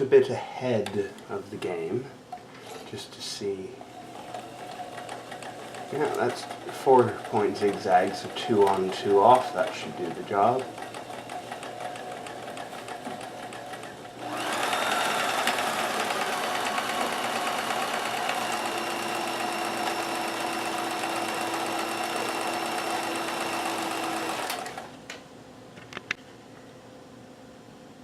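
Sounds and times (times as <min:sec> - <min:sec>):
sewing machine stitching: 0:03.8 - 0:25.0.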